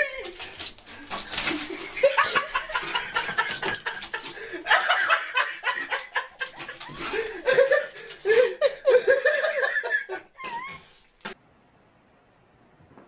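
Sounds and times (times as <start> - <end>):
person laughing in bursts: 1.5 - 10.9.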